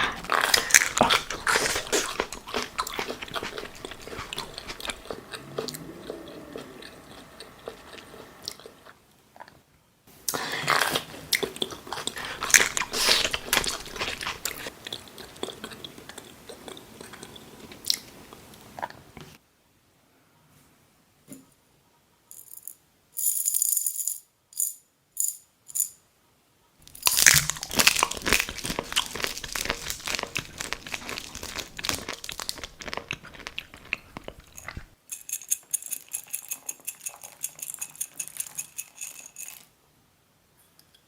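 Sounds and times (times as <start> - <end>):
food crunching and crinkling: 0.0 - 9.6, 10.3 - 19.2, 26.8 - 39.6.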